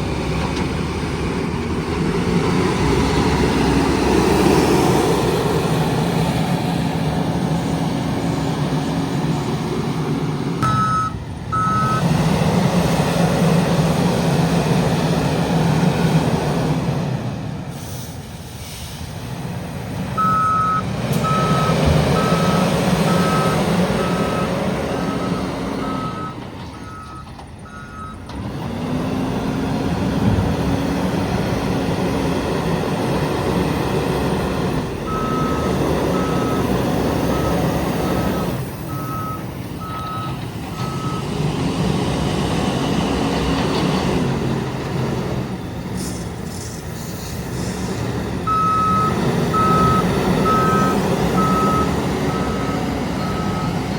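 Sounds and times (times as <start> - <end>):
diesel loader engine working: 0.0 - 53.9
reversing alarm beeping: 10.6 - 12.1, 20.2 - 28.3, 35.0 - 41.3, 48.4 - 53.9.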